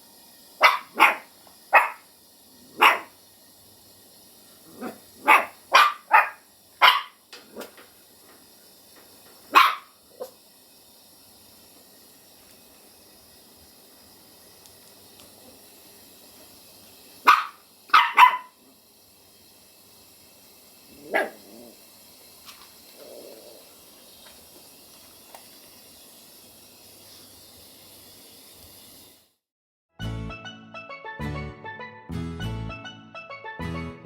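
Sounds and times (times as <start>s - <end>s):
puppy barking: 0.6s - 2.0s, 2.8s - 3.1s, 4.8s - 7.7s, 9.5s - 10.4s, 17.2s - 18.6s, 21.0s - 21.4s.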